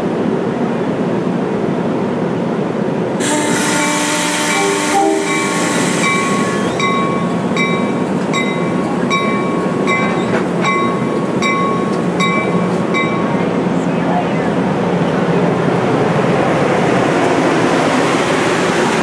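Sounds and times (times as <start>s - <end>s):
train running past: 0.0s - 19.0s
train horn chord: 3.2s - 6.8s
crossing bell dinging: 3.2s - 13.6s.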